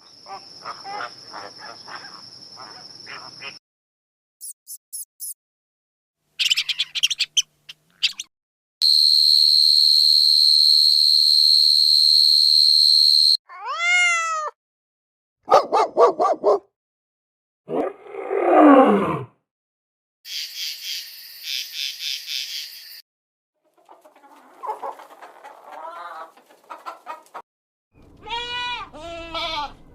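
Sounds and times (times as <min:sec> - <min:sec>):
animal chirps: 0:06.4 - 0:08.3.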